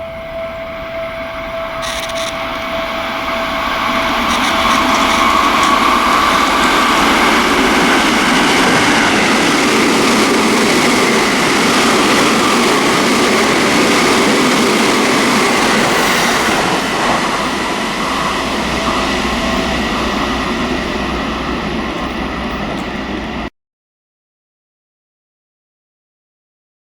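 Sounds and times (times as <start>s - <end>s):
electric train passing: 0.0s - 23.5s
steady whining tones: 0.0s - 23.5s
wheel-on-rail noise: 0.0s - 23.5s.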